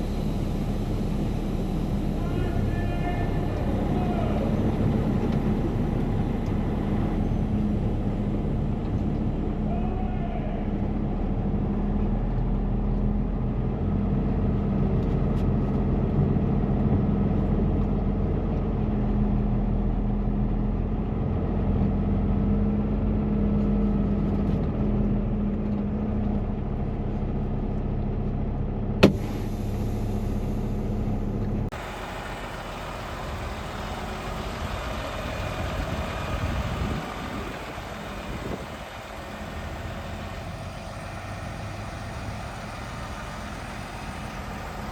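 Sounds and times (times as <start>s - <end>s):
truck engine idling: 0.0s - 44.9s
hissy background: 31.7s - 44.9s.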